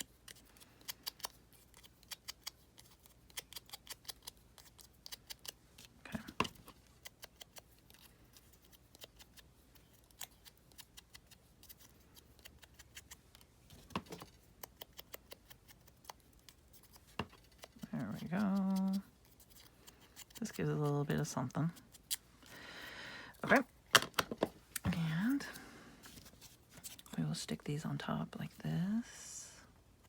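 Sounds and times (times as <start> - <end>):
scissors snipping paper: 0.0 - 13.5, 14.2 - 22.2.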